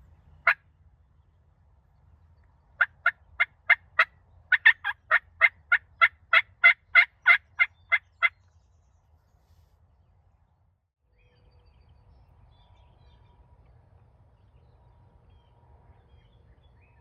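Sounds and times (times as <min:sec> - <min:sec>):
turkey yelps: 0:03.7 - 0:08.3.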